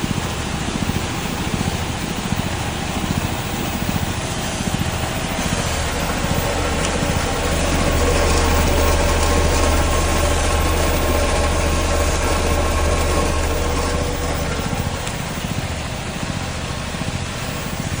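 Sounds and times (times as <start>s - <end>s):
vibrating sieve machine humming: 0.0s - 18.0s.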